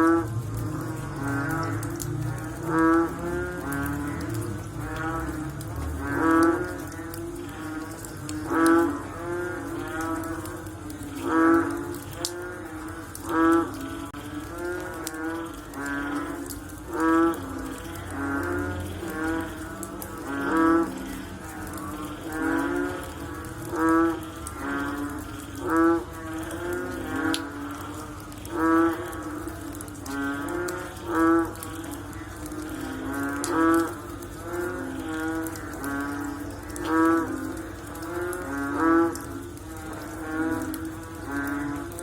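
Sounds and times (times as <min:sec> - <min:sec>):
frog low call: 0:00.0 - 0:42.0
frogs calling softly: 0:00.0 - 0:42.0.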